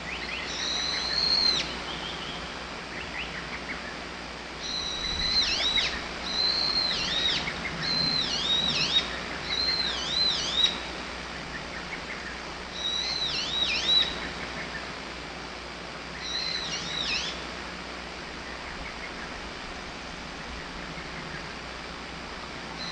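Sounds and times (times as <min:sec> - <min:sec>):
cuckoo whistled song: 0:00.1 - 0:02.4, 0:04.6 - 0:10.8, 0:12.8 - 0:14.7.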